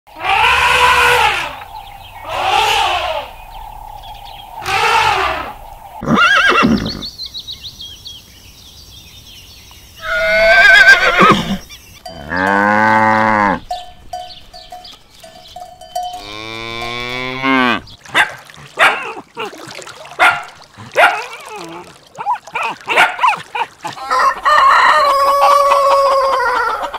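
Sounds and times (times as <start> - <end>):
elephant trumpeting: 0.1 - 3.5, 4.6 - 7.0
cattle lowing: 0.1 - 7.1
horses whinnying: 0.2 - 3.6, 4.6 - 7.1, 10.0 - 13.7
dog barking: 18.1 - 19.2, 20.2 - 21.4, 22.3 - 23.6.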